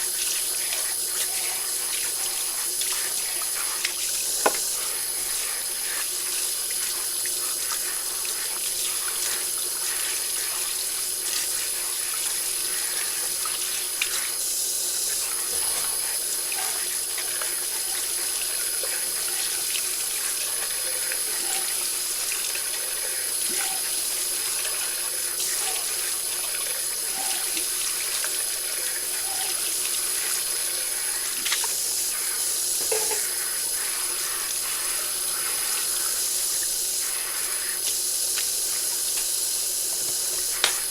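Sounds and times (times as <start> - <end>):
tap water running into sink: 0.0 - 40.9
dishes clinking: 32.8 - 33.3.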